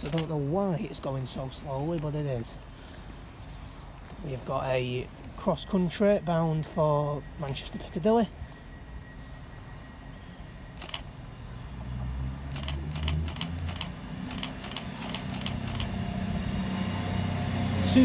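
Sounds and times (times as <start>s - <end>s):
diesel train engine drone: 0.0s - 18.0s
sharp clicks: 10.8s - 11.0s, 12.5s - 16.0s.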